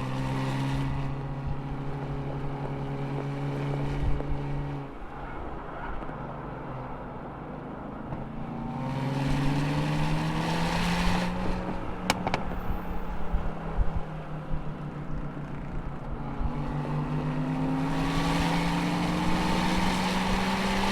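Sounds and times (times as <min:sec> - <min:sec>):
low wind rumble: 0:00.0 - 0:20.9
car engine accelerating hard: 0:08.1 - 0:13.8, 0:16.0 - 0:20.9.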